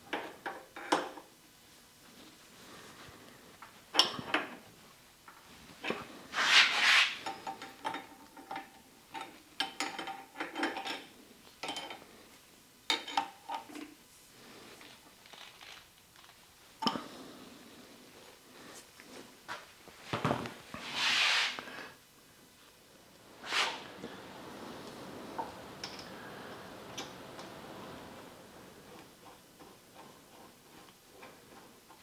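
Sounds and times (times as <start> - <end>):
scraping noise: 6.3 - 7.2, 23.4 - 24.0.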